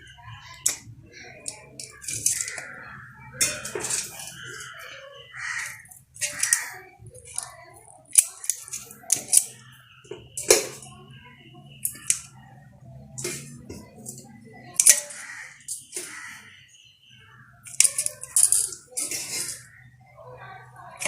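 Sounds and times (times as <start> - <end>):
metal utensil clinking on pot: 3.4 - 4.8, 5.6 - 11.0, 13.2 - 16.4, 17.6 - 19.9.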